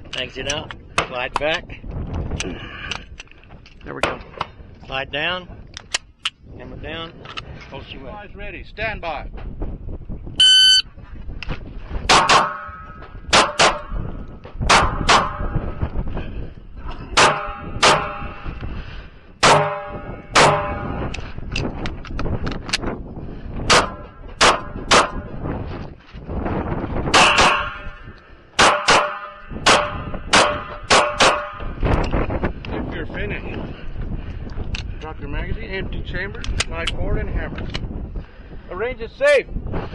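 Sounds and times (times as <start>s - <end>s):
wind buffeting microphone: 0.0s - 39.9s
shot timer beep: 10.4s - 10.8s
metallic ring of steel target: 12.1s - 14.0s, 17.2s - 18.4s, 19.4s - 21.1s, 27.1s - 28.0s, 28.6s - 31.7s
pistol shots: 19.4s - 20.8s, 23.7s - 25.2s, 28.6s - 31.6s.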